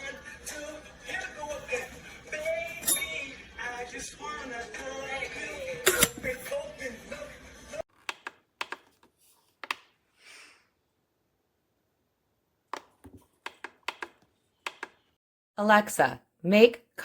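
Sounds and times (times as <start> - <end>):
sharp clicks and taps: 8.0 - 8.9, 12.7 - 15.0.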